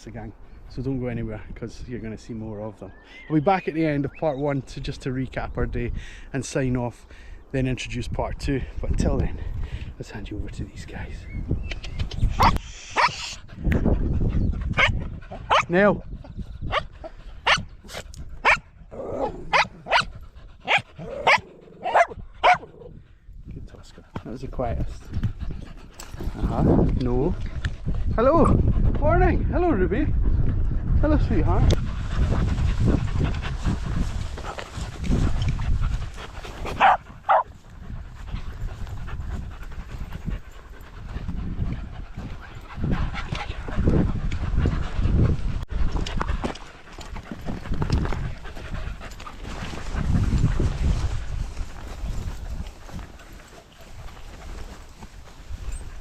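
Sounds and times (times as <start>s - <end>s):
dogs panting: 12.4s - 18.9s, 19.6s - 29.0s, 30.1s - 56.0s
small dog barking: 14.8s - 15.7s, 17.4s - 17.6s, 18.4s - 18.6s, 19.5s - 20.1s, 20.7s - 22.7s, 36.8s - 37.5s.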